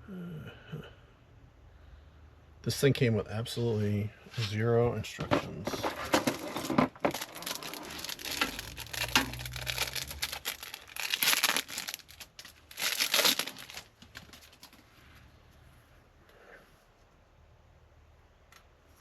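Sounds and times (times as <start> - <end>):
packaging crinkling: 5.7 - 14.8.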